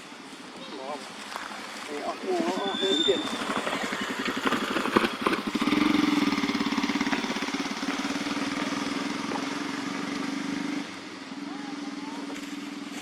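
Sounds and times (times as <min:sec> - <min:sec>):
small engine idling: 0:00.2 - 0:13.0.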